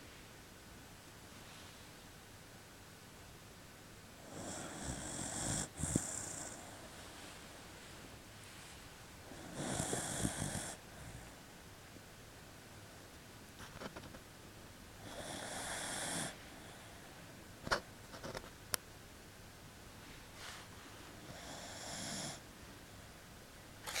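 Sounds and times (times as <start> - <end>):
dog snoring with whistle: 4.2 - 6.9, 9.3 - 11.3, 15.0 - 16.8, 21.2 - 22.4.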